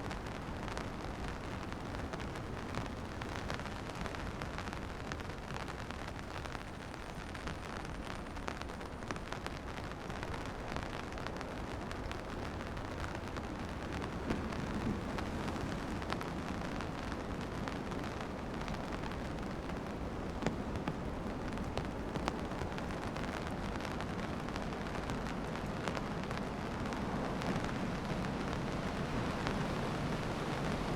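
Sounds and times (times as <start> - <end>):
rain hiss: 0.0 - 30.9
raindrops tapping: 12.0 - 26.0.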